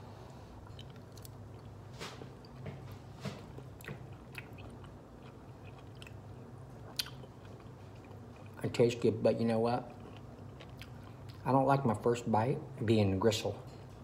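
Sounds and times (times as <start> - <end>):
low steady hum: 0.0 - 14.0
man chewing: 0.2 - 8.6, 9.9 - 11.4.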